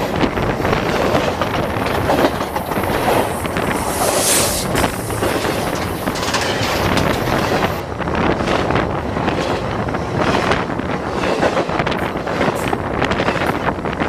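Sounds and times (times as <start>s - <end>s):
train cars rumbling overhead: 0.0s - 14.0s
train hiss: 2.7s - 7.8s.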